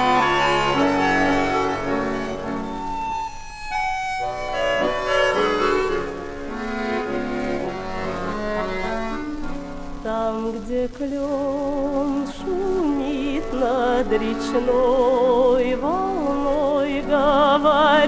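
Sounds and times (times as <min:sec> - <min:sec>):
orchestral strings: 0:00.0 - 0:11.2
woman singing with vibrato: 0:10.0 - 0:18.0.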